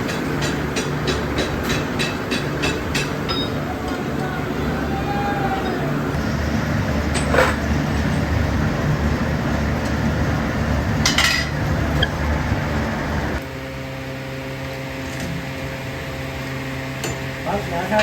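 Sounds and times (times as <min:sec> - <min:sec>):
metalworking machinery running: 0:00.0 - 0:13.6.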